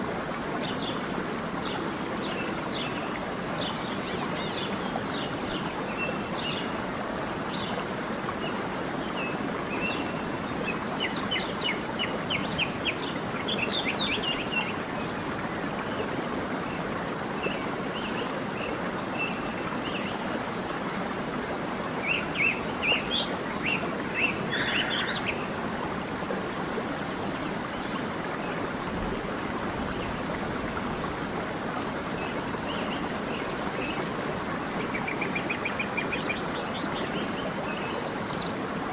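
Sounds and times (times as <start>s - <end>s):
creek rushing: 0.0s - 38.9s.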